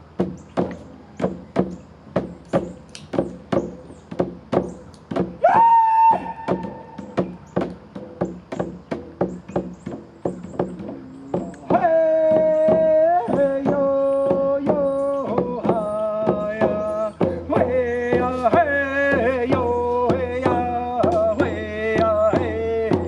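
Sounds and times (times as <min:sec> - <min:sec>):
hand drum beat: 0:00.1 - 0:23.0
person singing long notes: 0:10.8 - 0:23.0.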